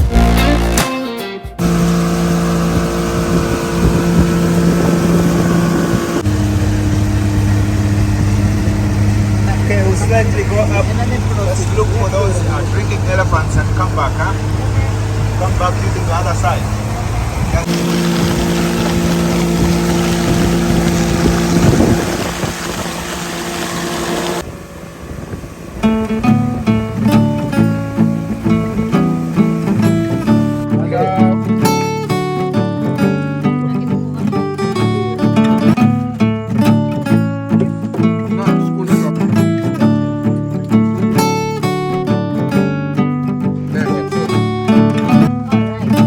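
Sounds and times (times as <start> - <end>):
wind on microphone: 1.6 - 9.7, 16.8 - 30.6
engine running: 1.6 - 46.0.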